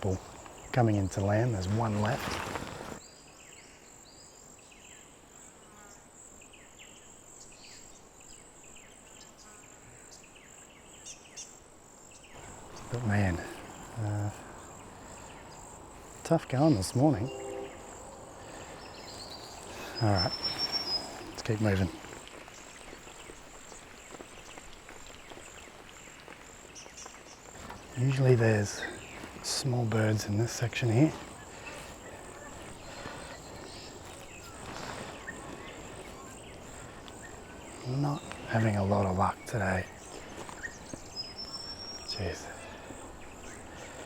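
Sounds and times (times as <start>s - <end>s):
high insect buzz: 0.0s - 3.1s, 12.0s - 44.0s
birds chirping: 0.0s - 3.6s, 6.6s - 44.0s.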